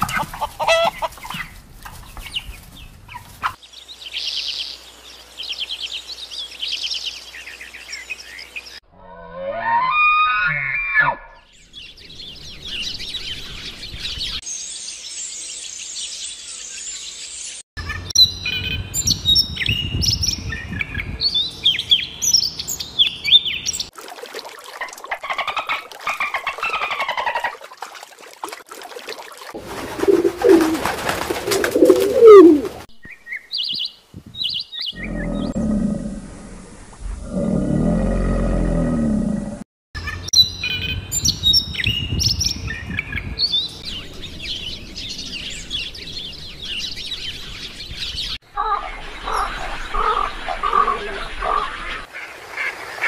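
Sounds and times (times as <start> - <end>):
bird chirps and song: 0.0 - 8.8, 11.3 - 23.9, 32.9 - 35.6, 40.0 - 52.1
low animal call with rising pitch: 8.9 - 11.5, 31.8 - 32.9, 34.9 - 39.6
robin singing: 11.3 - 23.9, 32.2 - 35.6, 40.0 - 52.0.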